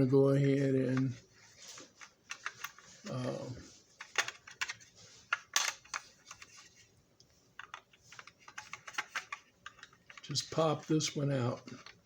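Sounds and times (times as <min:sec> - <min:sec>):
plastic and metal parts clacking: 0:00.9 - 0:03.0, 0:04.0 - 0:06.8, 0:07.6 - 0:12.0.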